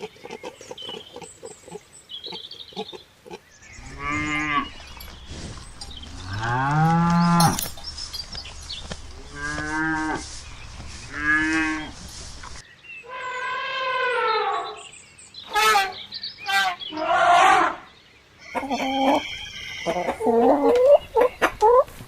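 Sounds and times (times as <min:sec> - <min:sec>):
cattle mooing: 0:03.8 - 0:07.6, 0:09.2 - 0:10.2, 0:11.1 - 0:12.0.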